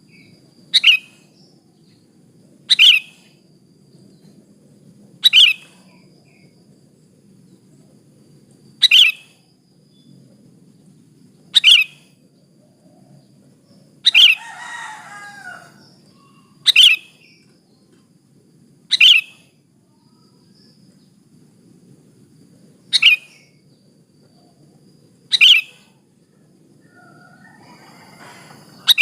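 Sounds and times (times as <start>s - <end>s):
bird sharp calls: 0.7s - 1.4s, 2.7s - 3.3s, 5.2s - 6.0s, 8.8s - 9.3s, 11.6s - 12.1s, 14.0s - 17.4s, 18.9s - 19.5s, 22.9s - 23.5s, 25.3s - 26.0s, 27.0s - 29.0s.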